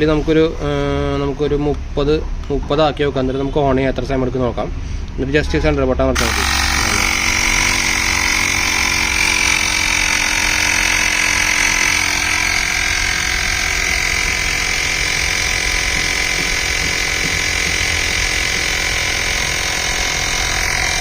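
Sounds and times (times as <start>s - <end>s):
air compressor humming and whining: 6.2s - 21.0s.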